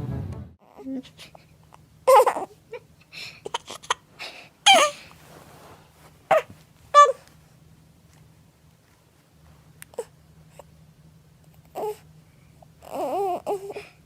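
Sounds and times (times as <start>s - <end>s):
baby crying: 2.1s - 2.8s, 4.7s - 5.0s, 6.3s - 7.2s, 12.8s - 13.8s.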